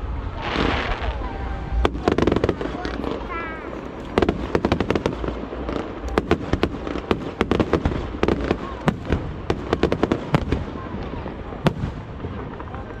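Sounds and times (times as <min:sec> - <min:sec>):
low rumble: 0:00.0 - 0:09.5
fireworks bangs and cracks: 0:00.0 - 0:13.0.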